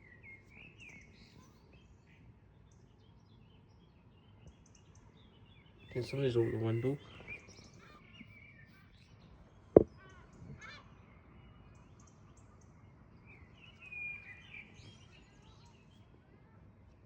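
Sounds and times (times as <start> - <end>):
birds chirping: 5.8 - 8.3.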